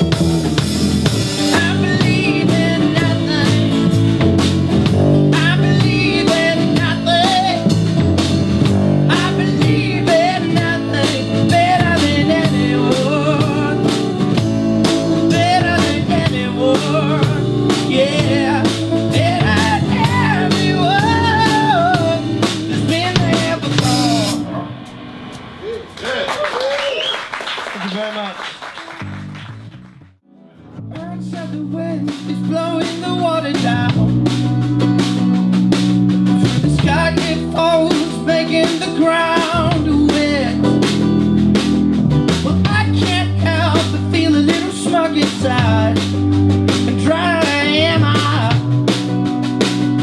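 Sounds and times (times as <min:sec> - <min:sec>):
guitar chords: 0:00.0 - 0:25.6, 0:29.0 - 0:50.0
drum-kit beat: 0:00.0 - 0:26.0, 0:30.9 - 0:50.0
person singing: 0:01.4 - 0:04.0, 0:05.2 - 0:07.7, 0:09.0 - 0:24.4, 0:30.4 - 0:34.2.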